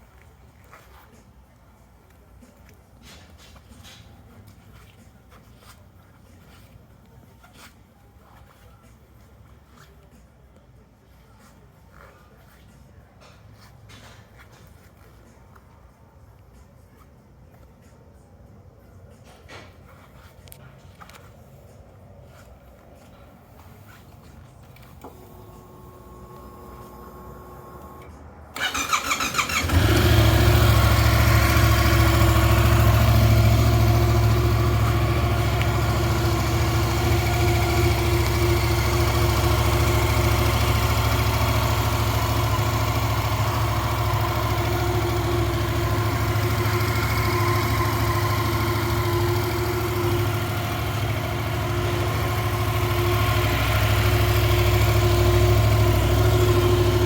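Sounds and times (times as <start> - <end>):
electric starter cranking: 28.6 - 57.0
motorcycle engine idling: 28.6 - 57.0.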